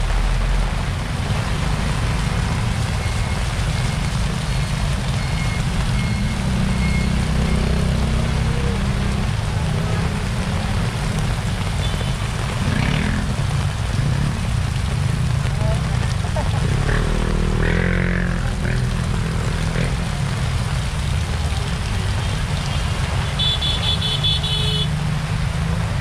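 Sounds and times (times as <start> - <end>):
heavy rain pouring: 0.0 - 26.0
motorcycle engines rumbling: 0.0 - 26.0.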